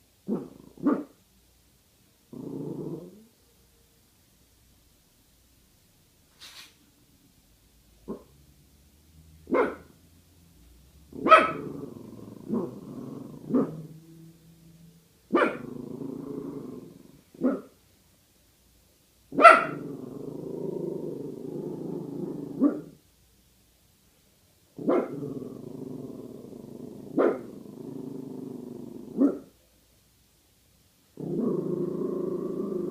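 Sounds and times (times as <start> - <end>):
dog growling: 0.3 - 1.1, 2.3 - 3.3, 11.1 - 14.4, 15.3 - 17.6, 19.5 - 23.0, 24.8 - 29.5, 31.2 - 32.9
small dog barking: 0.3 - 1.2, 8.1 - 8.3, 9.5 - 10.0, 11.2 - 12.8, 15.3 - 15.7, 17.3 - 17.8, 19.3 - 19.9, 22.5 - 23.0, 24.8 - 25.2, 27.1 - 27.5, 29.1 - 29.5.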